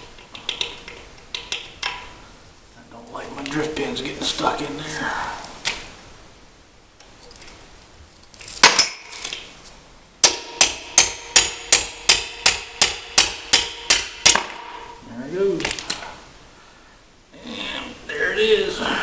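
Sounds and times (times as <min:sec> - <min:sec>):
hammer striking metal punch: 0:10.2 - 0:15.0.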